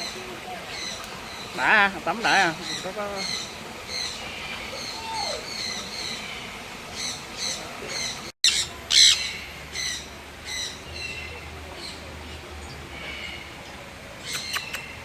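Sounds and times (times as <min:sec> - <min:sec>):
birds squawking: 0:00.0 - 0:11.2.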